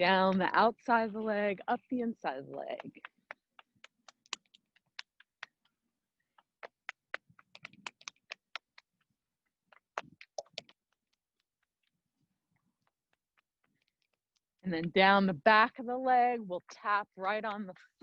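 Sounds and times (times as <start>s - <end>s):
hands patting legs: 6.4s - 8.9s.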